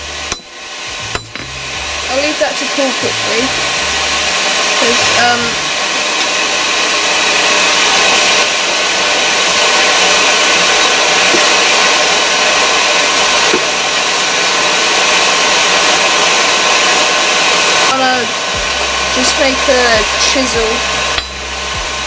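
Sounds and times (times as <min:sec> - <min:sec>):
forge blower whooshing: 0:00.0 - 0:22.0.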